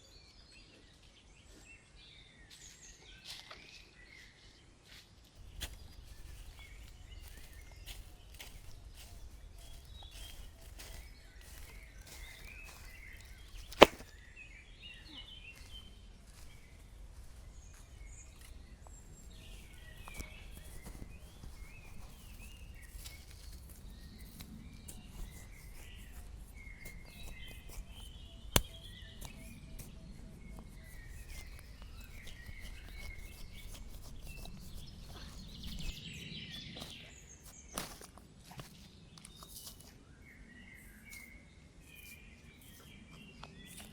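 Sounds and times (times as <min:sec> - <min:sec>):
birds chirping and calling: 0:05.4 - 0:14.1, 0:14.7 - 0:16.5.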